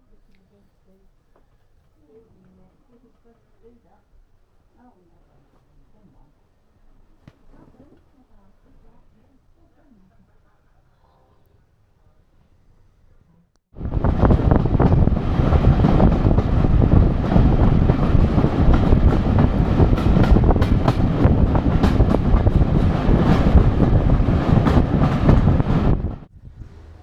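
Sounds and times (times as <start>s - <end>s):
rail clatter: 13.8s - 26.3s
train rumbling along track: 13.8s - 27.0s.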